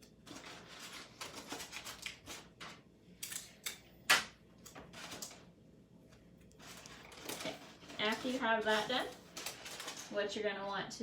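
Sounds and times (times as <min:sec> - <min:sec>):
foil and tape crackling: 0:00.0 - 0:02.8, 0:06.4 - 0:10.5.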